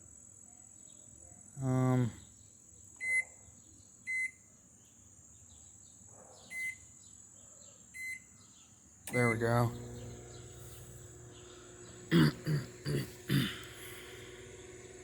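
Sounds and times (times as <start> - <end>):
microwave keypad beeps: 3.0 - 3.3, 4.1 - 4.4, 6.5 - 6.8, 8.0 - 8.3, 9.1 - 9.7
faint high whine: 9.1 - 15.0
short vocal sound: 12.0 - 14.3.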